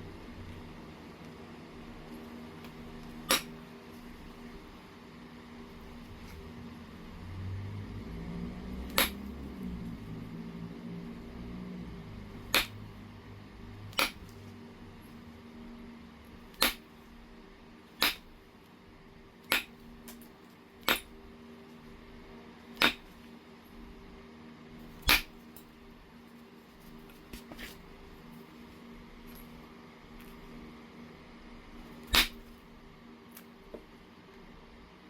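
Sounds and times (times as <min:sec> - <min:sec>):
faint steady hum: 0:00.0 - 0:35.0
stone knapping clicks: 0:13.9 - 0:14.3, 0:16.5 - 0:16.8, 0:18.0 - 0:18.3, 0:19.4 - 0:20.2, 0:22.8 - 0:23.1, 0:32.1 - 0:32.4.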